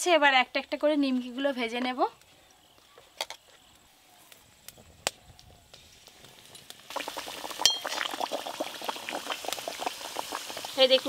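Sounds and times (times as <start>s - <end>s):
dough sizzling in oil: 5.8s - 11.0s.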